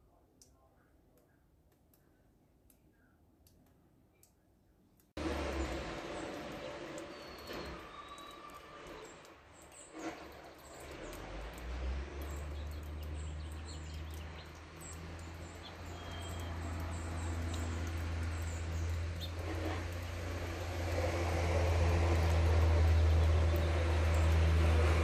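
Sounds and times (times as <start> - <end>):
outdoor background noise: 0.0 - 25.0
small birds chirping: 5.6 - 21.1, 22.0 - 25.0.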